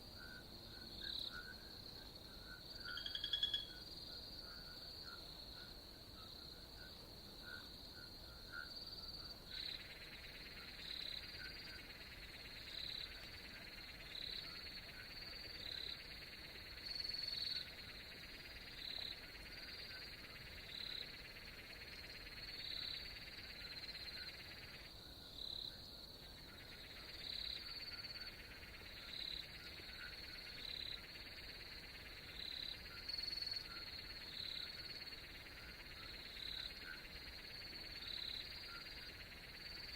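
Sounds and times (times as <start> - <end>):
frog calls: 2.4 - 5.7, 6.8 - 39.9
high-pitched insect trill: 2.8 - 3.8.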